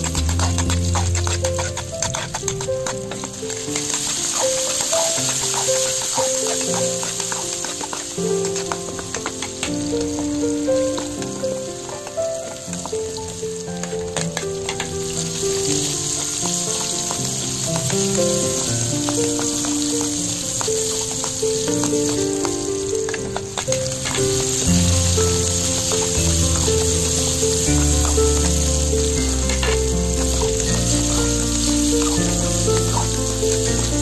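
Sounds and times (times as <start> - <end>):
bass line: 0.0 - 1.6, 24.7 - 34.0
background music: 0.0 - 34.0
vegetables sizzling in a wok: 0.0 - 34.0.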